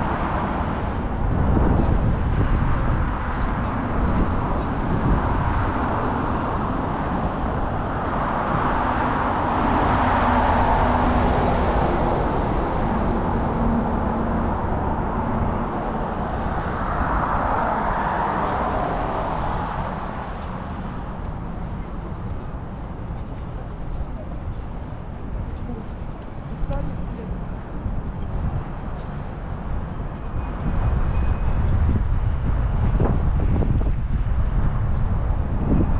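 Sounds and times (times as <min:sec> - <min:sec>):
traffic rumble: 0:00.0 - 0:35.9
vehicles driving past: 0:00.0 - 0:35.9
wind on microphone: 0:00.0 - 0:35.9.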